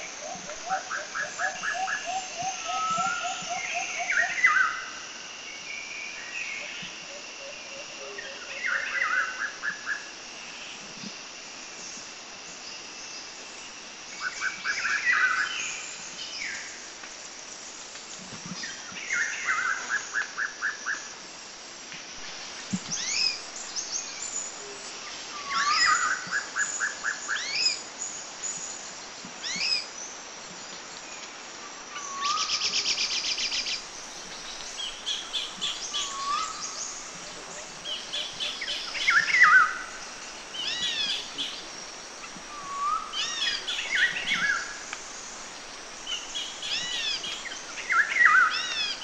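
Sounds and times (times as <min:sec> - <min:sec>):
background hiss: 0:00.0 - 0:49.0
songbirds singing: 0:32.1 - 0:49.0.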